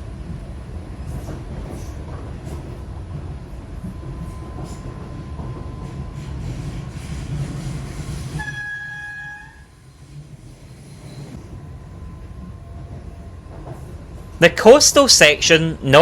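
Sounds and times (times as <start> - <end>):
electric train rumbling: 0.0 - 16.0
train horn tone: 8.4 - 9.9.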